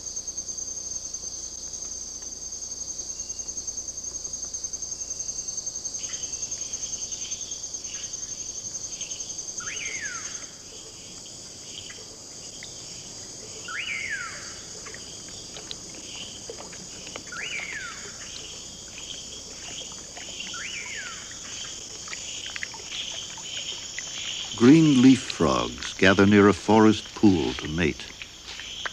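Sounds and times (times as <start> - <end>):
insects trilling: 0.0 - 28.9
falling whistled bird call: 13.7 - 14.6.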